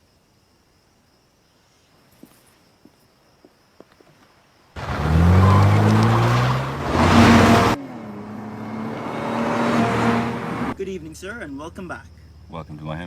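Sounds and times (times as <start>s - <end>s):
car engine accelerating hard: 4.8s - 10.8s
steady engine hum: 4.8s - 11.8s.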